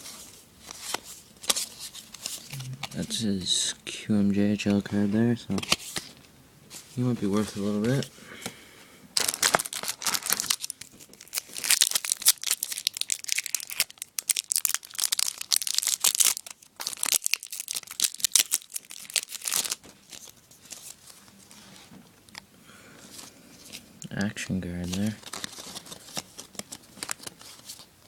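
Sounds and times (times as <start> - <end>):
wrapper tearing and crinkling: 9.2 - 21.1, 24.8 - 27.9.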